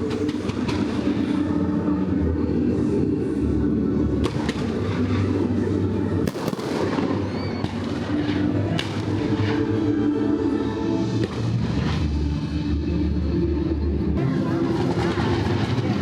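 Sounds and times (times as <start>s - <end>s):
fireworks bangs: 6.2s - 9.6s.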